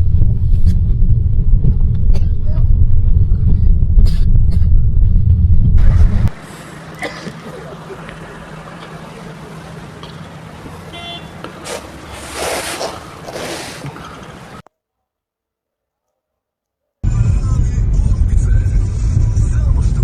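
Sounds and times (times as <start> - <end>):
loud deep vehicle rumble: 0.0 - 14.6, 17.0 - 20.0
steady traffic noise: 0.0 - 14.7, 17.1 - 20.0.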